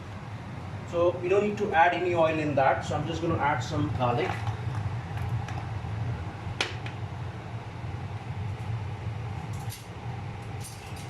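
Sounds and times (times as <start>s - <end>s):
induction hob cooling fan hum: 0.0s - 11.0s.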